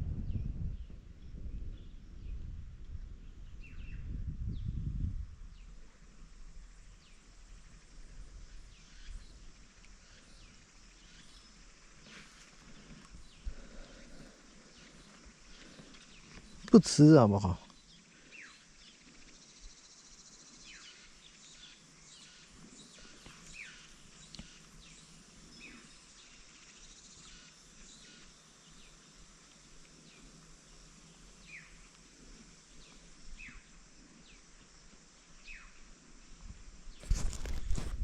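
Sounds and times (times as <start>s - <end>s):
insect drone: 0.2s - 38.0s
birds chirping: 10.0s - 29.0s.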